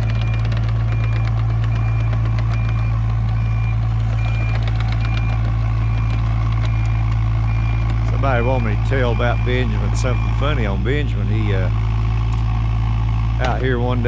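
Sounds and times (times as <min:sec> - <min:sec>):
backup alarm beeping: 0:00.0 - 0:11.2
excavator engine running: 0:00.0 - 0:14.0.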